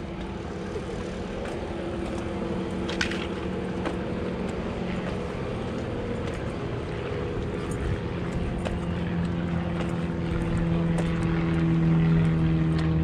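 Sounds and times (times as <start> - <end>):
car engine humming: 0.0 - 13.0
road noise: 0.0 - 13.0.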